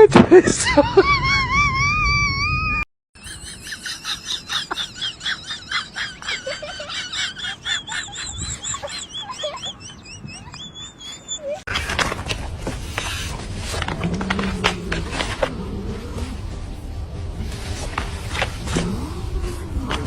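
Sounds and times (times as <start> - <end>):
high-pitched bird-like chirps: 3.2 - 4.6, 8.1 - 11.7
wavering whistle-like tone: 8.1 - 11.7.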